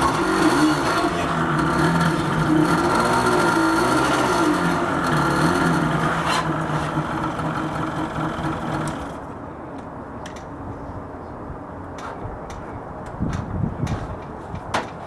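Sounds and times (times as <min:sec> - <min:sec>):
atv engine running: 0:00.0 - 0:09.3.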